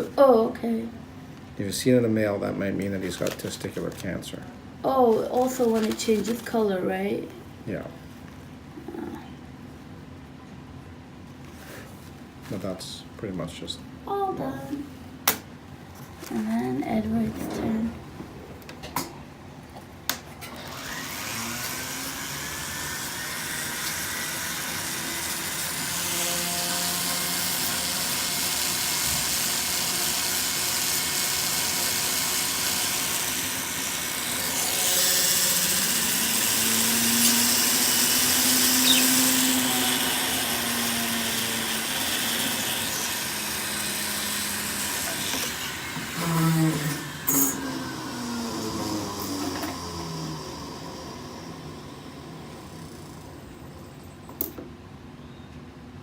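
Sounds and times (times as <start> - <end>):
small rotary grinding tool running: 20.4 - 54.2.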